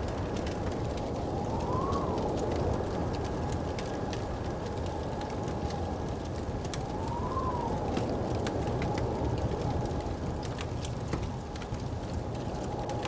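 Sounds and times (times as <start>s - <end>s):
fireplace crackling: 0.0s - 13.0s
snowstorm wind rushing: 0.0s - 13.0s
faint whistling tone: 7.0s - 7.9s.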